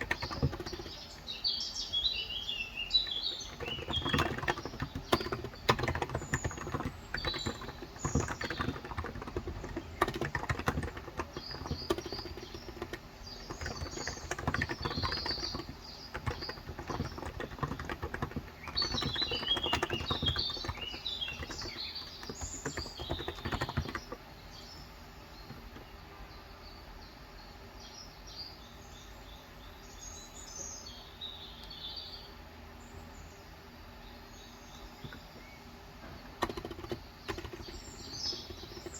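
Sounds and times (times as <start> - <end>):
keyboard typing: 0.0 - 1.4, 2.9 - 24.2, 25.5 - 25.9, 36.0 - 38.9
small birds chirping: 0.0 - 38.9.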